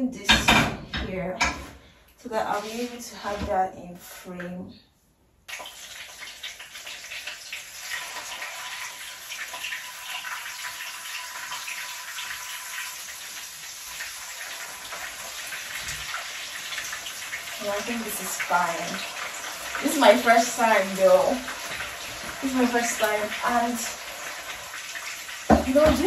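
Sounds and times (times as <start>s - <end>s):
meat sizzling in hot oil: 5.5s - 26.0s.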